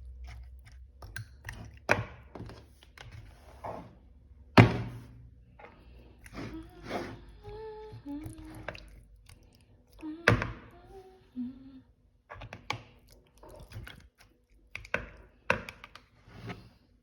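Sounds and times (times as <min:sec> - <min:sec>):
person humming: 0:06.3 - 0:08.9, 0:10.0 - 0:11.9.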